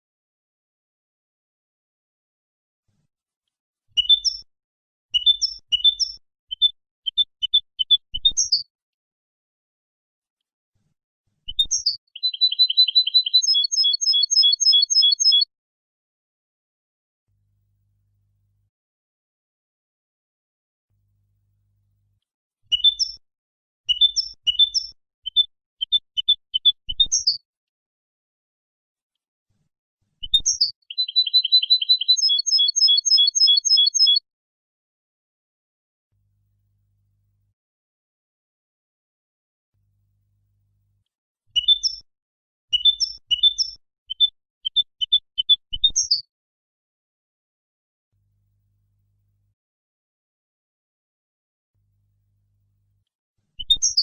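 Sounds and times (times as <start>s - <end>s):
goldfinch twittering song: 4.0s - 4.4s, 5.2s - 8.6s, 11.5s - 15.5s, 22.7s - 23.2s, 23.9s - 27.4s, 30.2s - 34.2s, 41.6s - 42.0s, 42.7s - 46.2s.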